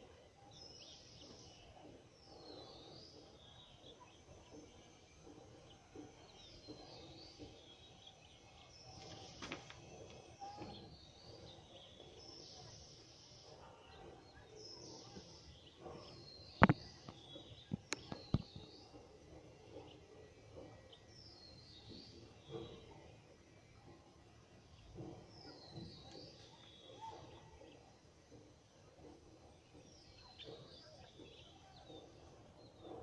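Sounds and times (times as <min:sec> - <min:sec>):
birds chirping: 0:00.0 - 0:33.0
faint outdoor background noise: 0:00.0 - 0:33.0.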